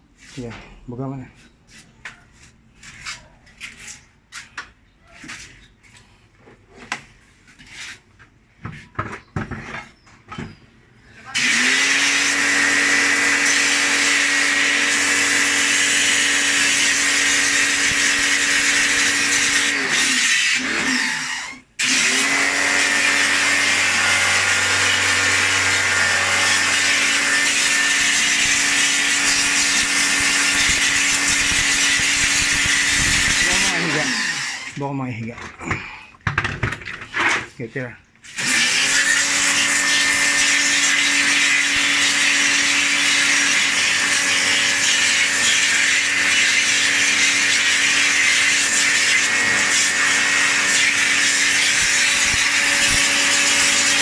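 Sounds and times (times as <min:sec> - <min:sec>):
electric motor machine whining: 0:11.3 - 0:34.8, 0:38.4 - 0:54.0.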